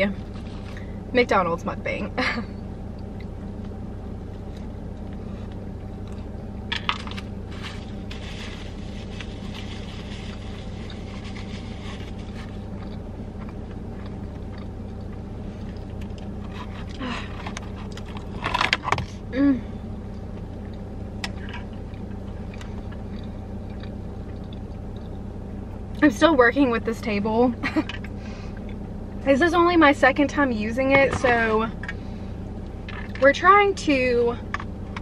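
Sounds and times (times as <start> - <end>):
steady low hum: 0.0 - 35.0
crunchy chewing: 3.0 - 18.5, 20.1 - 25.5.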